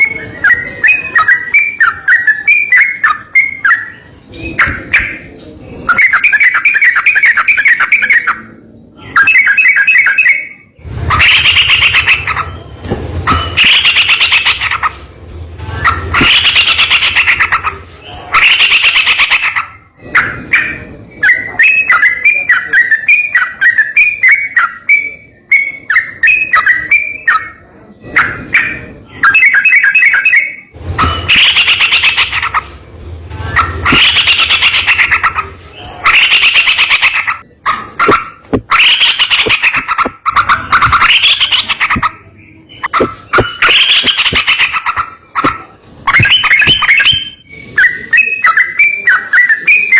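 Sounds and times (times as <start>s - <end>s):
bird singing rolling notes: 0.0s - 49.9s.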